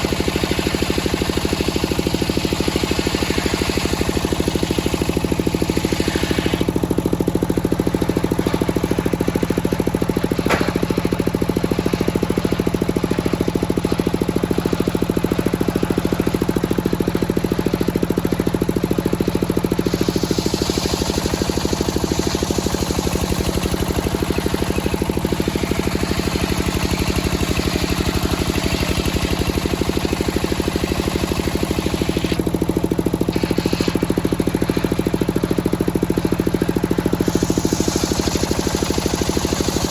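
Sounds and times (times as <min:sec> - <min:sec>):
saw blade hissing through log: 0:00.0 - 0:07.0, 0:19.7 - 0:32.4, 0:33.2 - 0:35.0, 0:37.0 - 0:39.9
pulsing sawmill engine: 0:00.0 - 0:39.9.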